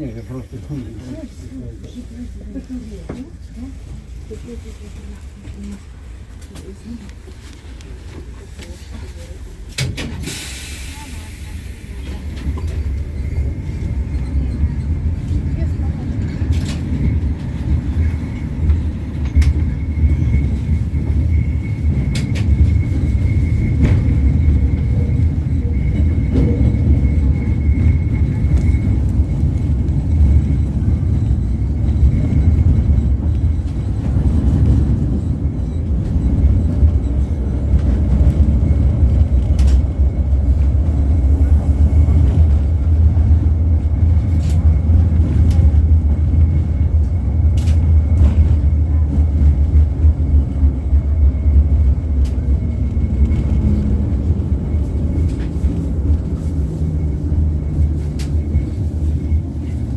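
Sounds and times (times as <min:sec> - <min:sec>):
tram rumbling: 0:00.0 - 0:59.9.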